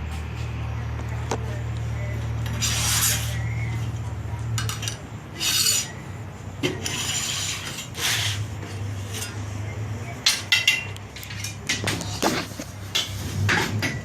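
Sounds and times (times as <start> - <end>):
sheet metal scraping on surface: 2.4 - 3.6, 4.6 - 6.0, 6.6 - 9.6.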